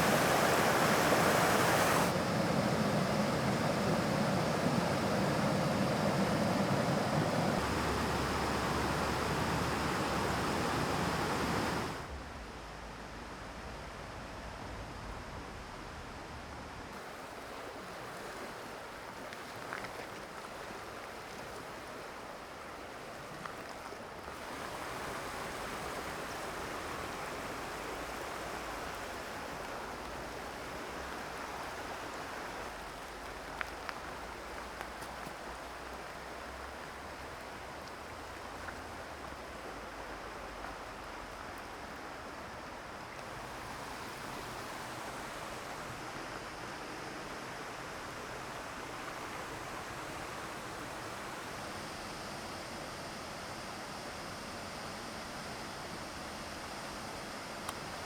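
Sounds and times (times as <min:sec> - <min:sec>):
mountain stream rushing over rocks: 0:00.0 - 0:12.1, 0:17.0 - 0:58.0
faint ticks: 0:32.6 - 0:42.4, 0:57.6 - 0:58.0.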